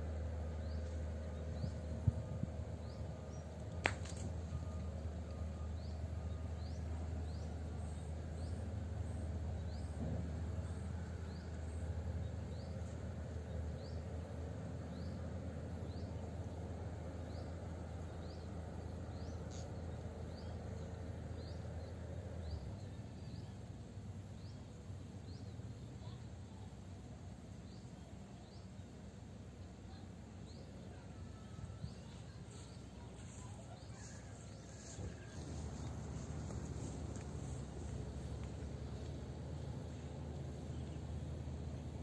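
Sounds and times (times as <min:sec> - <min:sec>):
steady low rumble: 0:00.0 - 0:42.0.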